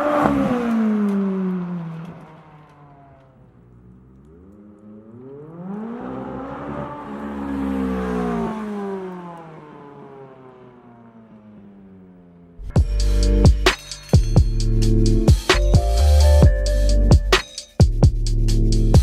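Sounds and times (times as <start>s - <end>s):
sports car engine revving: 0.0s - 13.7s.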